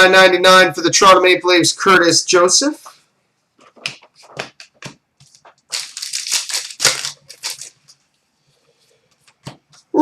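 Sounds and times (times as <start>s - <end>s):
cards and packaging rustling: 3.6s - 8.0s.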